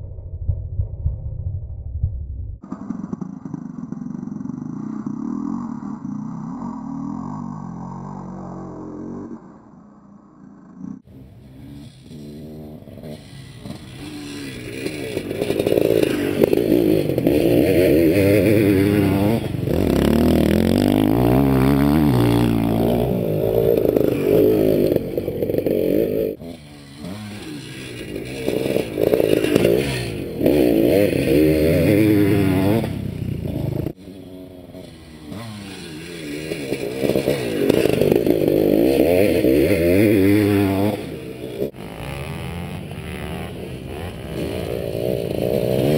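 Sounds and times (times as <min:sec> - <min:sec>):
motocross engine revving: 0:10.7 - 0:45.9.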